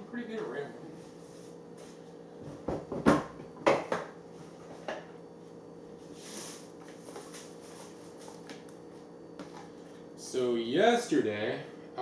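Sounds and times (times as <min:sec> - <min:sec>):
soft brushing sound: 0:06.0 - 0:08.4.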